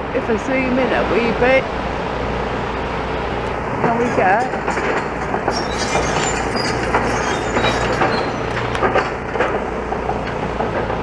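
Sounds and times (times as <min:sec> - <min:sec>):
excavator engine drone: 0:00.0 - 0:11.0
clanks of metal and rubble: 0:03.8 - 0:11.0.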